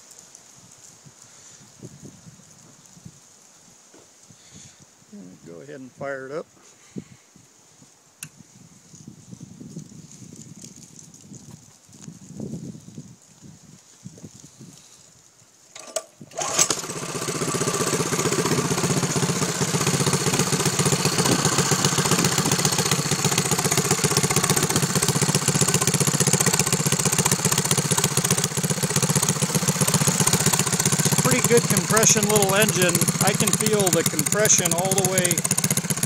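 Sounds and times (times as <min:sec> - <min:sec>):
small engine starting and running: 0:15.7 - 0:36.0.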